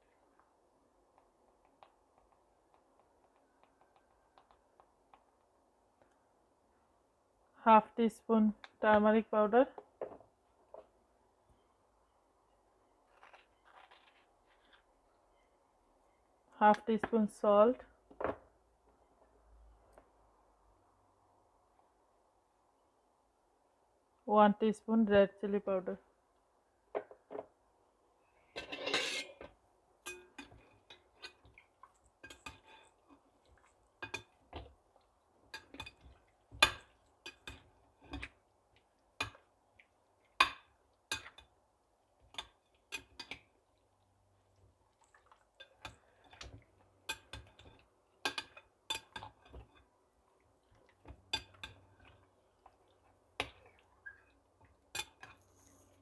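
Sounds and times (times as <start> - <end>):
spoon scraping bowl: 28.6 - 29.5.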